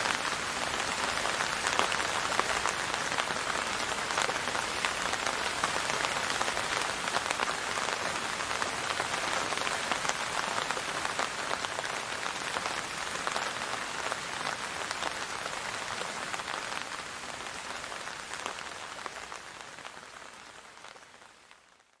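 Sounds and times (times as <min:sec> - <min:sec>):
rain falling on a surface: 0:00.0 - 0:22.0.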